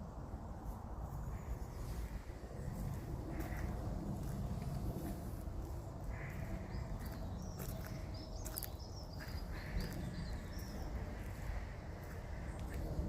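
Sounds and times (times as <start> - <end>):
steady low rumble: 0.0 - 13.0
birds chirping: 1.2 - 13.0.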